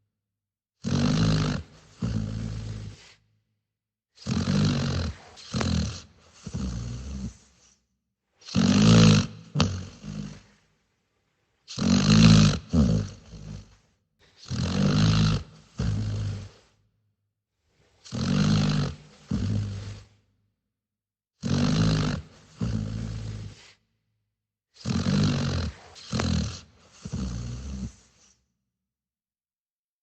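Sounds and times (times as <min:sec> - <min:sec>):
dog snoring: 0:00.8 - 0:03.3, 0:04.2 - 0:07.8, 0:08.4 - 0:10.8, 0:11.7 - 0:16.8, 0:17.7 - 0:20.3, 0:21.4 - 0:23.9, 0:24.8 - 0:28.5.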